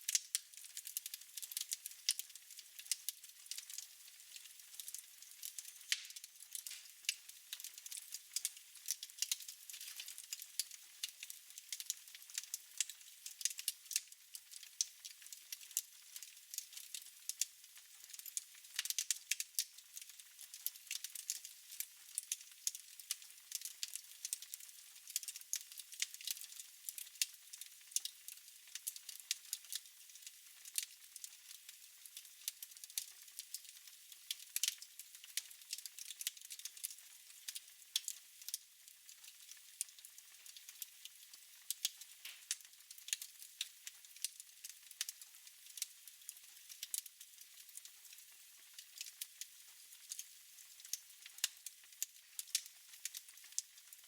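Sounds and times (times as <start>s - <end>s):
fire crackling: 0.1s - 14.7s, 41.7s - 43.3s, 50.8s - 53.6s.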